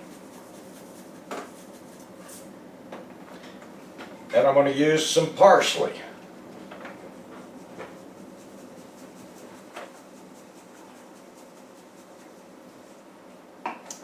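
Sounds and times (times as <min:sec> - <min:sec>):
scratchy rustling of dried herbs: 0:00.0 - 0:02.6, 0:07.1 - 0:13.0.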